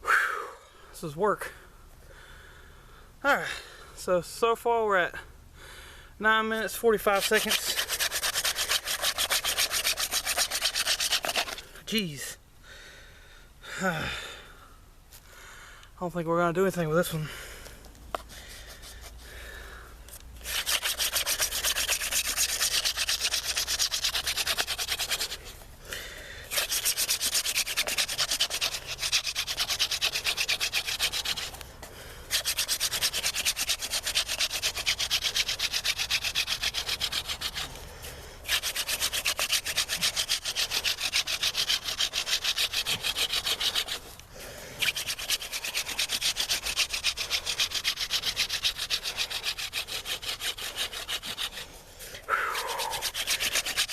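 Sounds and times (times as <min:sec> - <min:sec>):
wooden spindle rubbing on board: 0:07.0 - 0:11.6, 0:20.4 - 0:25.6, 0:26.5 - 0:31.6, 0:32.3 - 0:37.8, 0:38.4 - 0:44.2, 0:44.8 - 0:51.7, 0:52.5 - 0:53.9.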